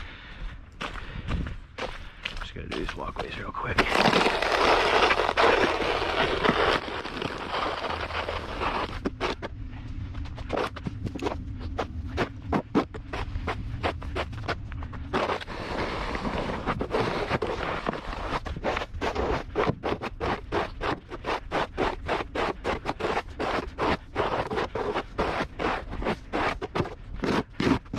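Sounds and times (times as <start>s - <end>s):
crisp crunches on snow: 2.4s - 9.5s, 10.3s - 27.9s
scraping hiss on snow: 3.7s - 9.5s, 11.7s - 27.9s.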